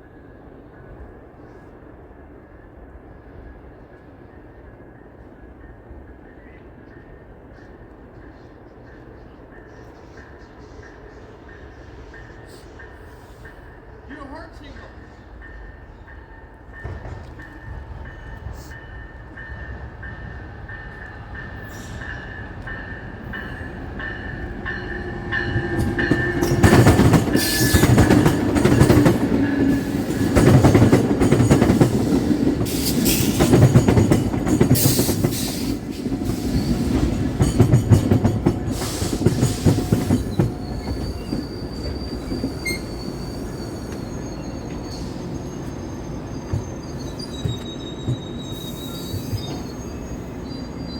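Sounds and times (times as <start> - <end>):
train wheels clattering on rails: 15.0 - 50.8
wheel squeal: 38.8 - 50.9.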